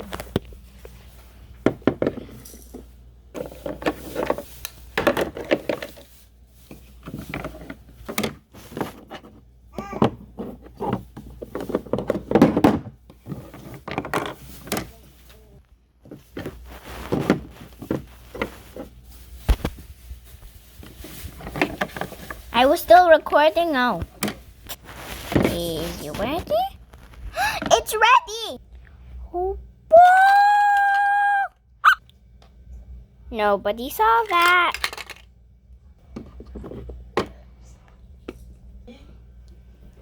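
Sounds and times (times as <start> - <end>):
person speaking: 25.3 - 26.8, 27.4 - 28.6
toy kitchen pieces clattering: 33.9 - 35.3.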